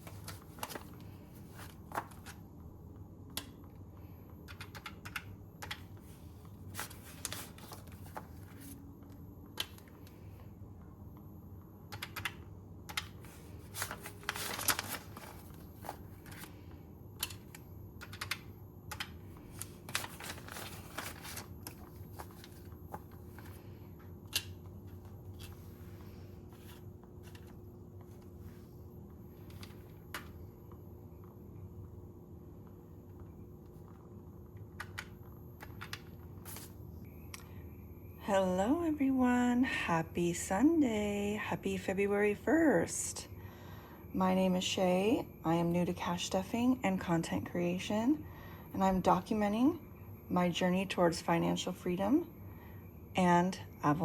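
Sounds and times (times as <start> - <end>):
paper banknotes rustling: 0.0 - 2.4, 5.6 - 8.8, 12.9 - 23.8.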